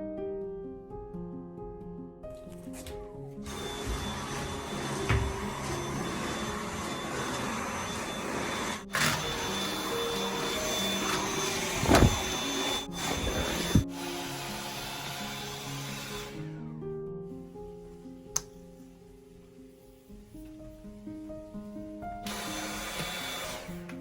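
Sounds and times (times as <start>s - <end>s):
background music: 0.0s - 24.0s
stick vacuum whirring: 3.4s - 16.4s, 22.2s - 24.0s.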